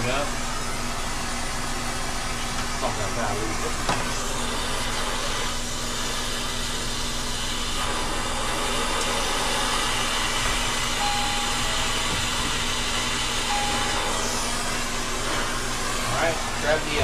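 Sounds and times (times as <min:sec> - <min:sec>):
brazing torch flame hissing: 0:03.5 - 0:11.0.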